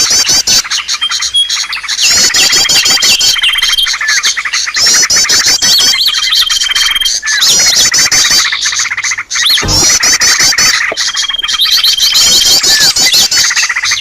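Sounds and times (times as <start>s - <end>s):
small birds chirping: 0.0s - 14.0s
low thud: 9.6s - 10.2s.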